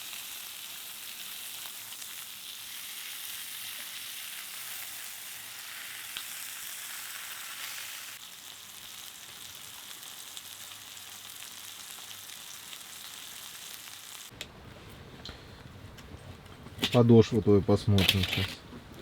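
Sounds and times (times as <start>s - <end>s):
steak sizzling: 0.0s - 14.4s.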